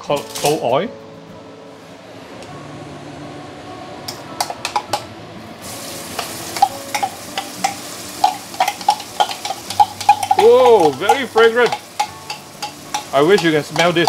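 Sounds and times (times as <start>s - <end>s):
paste sizzling in hot oil: 5.6s - 14.0s
spoon clinking and scraping: 6.2s - 14.0s.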